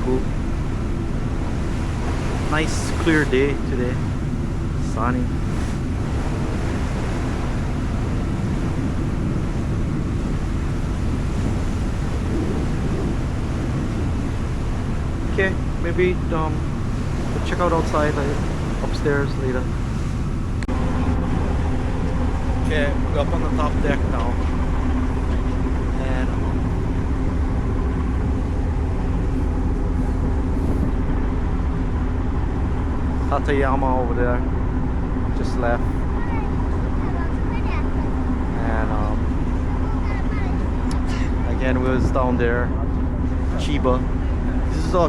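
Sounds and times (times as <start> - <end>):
wind noise on microphone: 0.0 - 33.2
ferry engine rumble: 0.0 - 45.0.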